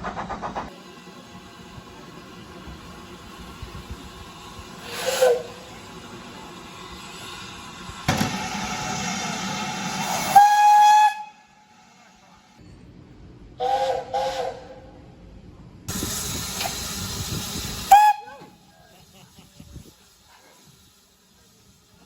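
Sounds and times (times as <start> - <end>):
steam hissing: 0.0 - 12.2, 15.9 - 22.0
steam whistle blast: 4.8 - 5.7, 8.4 - 11.6, 13.6 - 14.8, 17.8 - 18.6.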